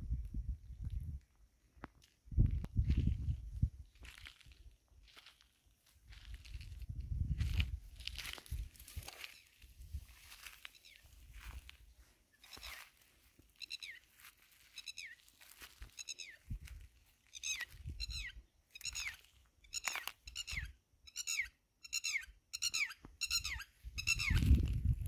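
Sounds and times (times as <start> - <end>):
footsteps on dry ground: 0.8 - 20.3, 24.1 - 25.0
bird calling harshly: 12.4 - 13.0, 13.6 - 16.5, 17.2 - 24.6.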